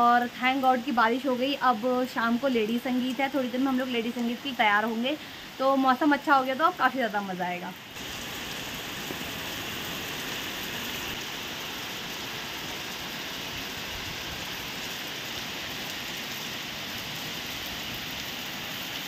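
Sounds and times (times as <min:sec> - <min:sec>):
heavy rain on concrete: 0:00.0 - 0:19.0.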